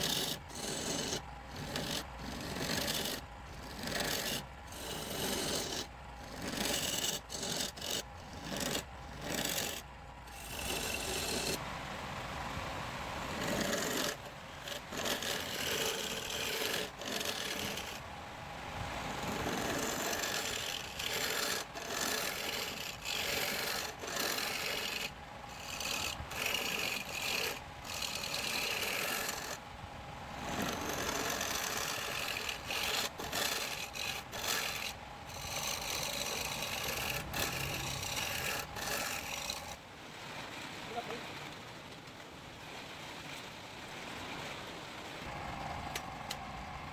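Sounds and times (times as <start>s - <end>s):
tool rasping against wood: 0.0s - 11.6s, 13.4s - 18.0s, 19.2s - 29.6s, 30.4s - 39.8s.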